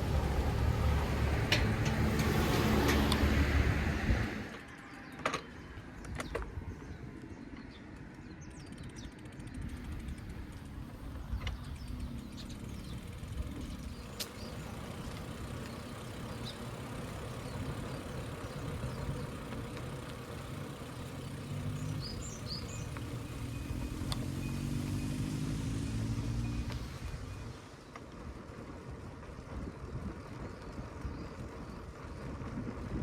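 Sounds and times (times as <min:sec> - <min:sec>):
low road rumble: 0:00.0 - 0:33.0
vehicle engine rising in pitch: 0:20.5 - 0:27.6.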